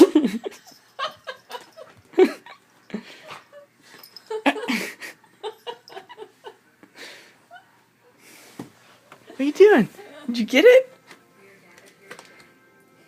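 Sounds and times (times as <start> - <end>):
people laughing: 0.0 - 7.9.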